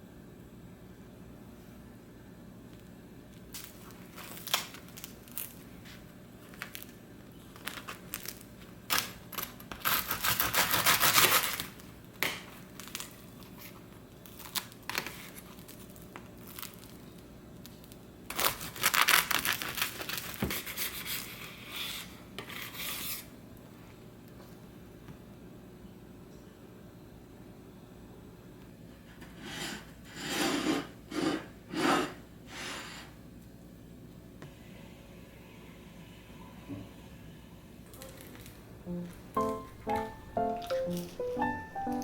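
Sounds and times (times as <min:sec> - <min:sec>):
crinkling and rustling: 0:03.5 - 0:10.0.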